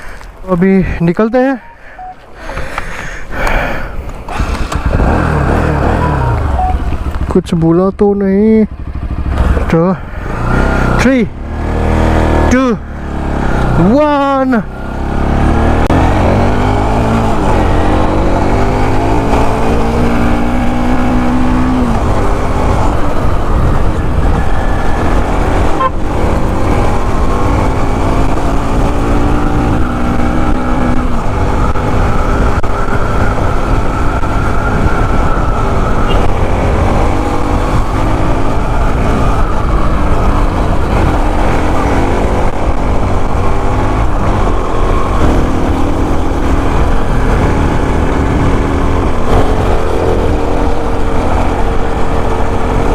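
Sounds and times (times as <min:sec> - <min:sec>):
motorcycle engine revving: 0:04.3 - 0:52.9
wind noise on microphone: 0:17.2 - 0:52.9.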